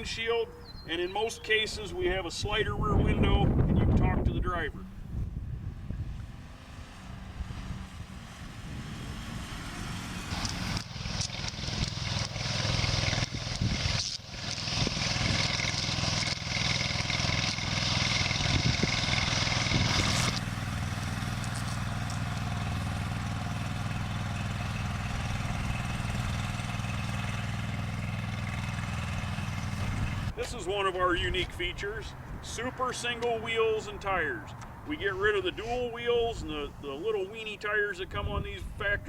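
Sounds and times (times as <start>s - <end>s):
fire truck engine running: 7.8s - 30.4s.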